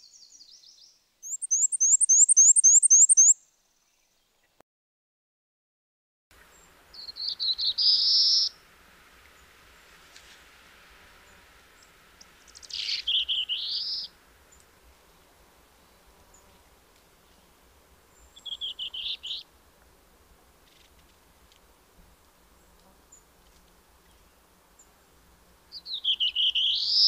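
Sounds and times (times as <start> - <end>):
warbler singing high notes: 1.2 - 3.4.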